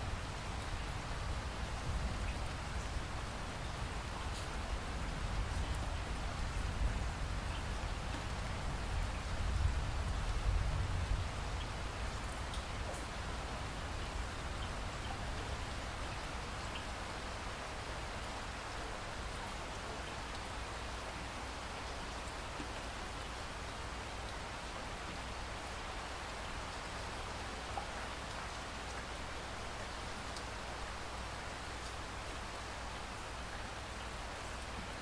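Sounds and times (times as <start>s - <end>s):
steady rain hiss: 0.0s - 35.0s
rain drop ticks: 31.5s - 32.0s.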